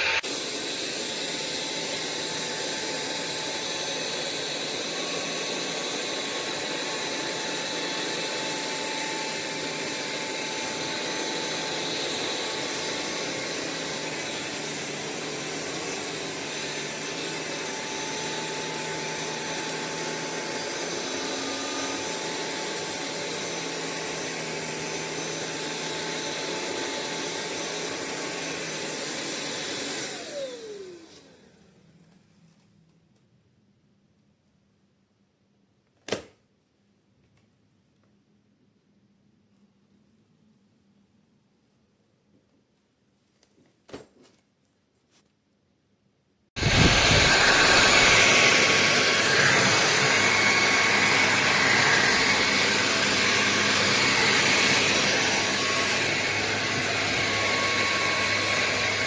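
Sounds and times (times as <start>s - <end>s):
vacuum motor spinning down: 0.0s - 32.0s, 46.6s - 59.0s
vacuum cleaner motor humming: 0.0s - 32.2s, 46.6s - 59.0s.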